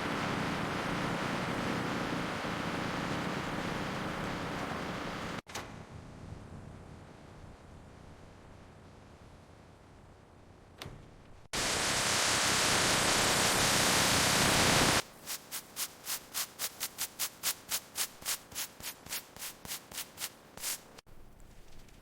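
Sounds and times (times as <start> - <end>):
loud hiss: 11.6 - 21.0
rubbing strokes on bodywork: 15.0 - 22.0.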